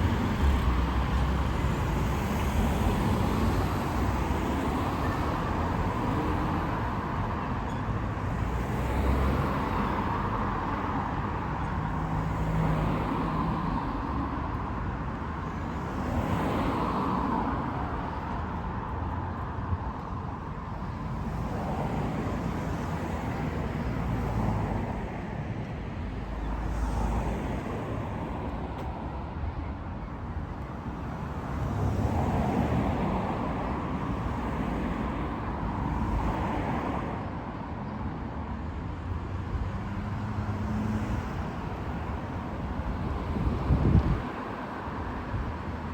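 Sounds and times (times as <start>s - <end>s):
road traffic: 0.0s - 45.9s
vehicles passing: 0.0s - 45.9s.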